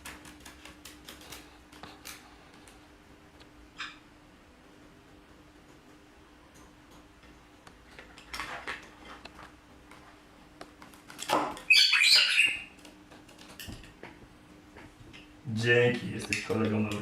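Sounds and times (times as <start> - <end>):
high-pitched animal calls: 11.6 - 12.8.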